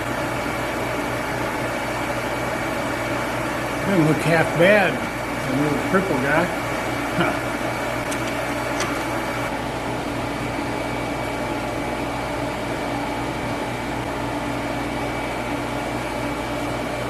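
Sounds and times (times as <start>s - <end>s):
fan noise: 0.0s - 17.0s
shop equipment hum: 0.0s - 17.0s.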